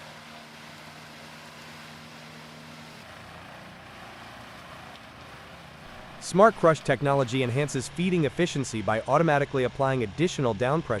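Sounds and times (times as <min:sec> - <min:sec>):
tree chipper running: 0:00.0 - 0:11.0.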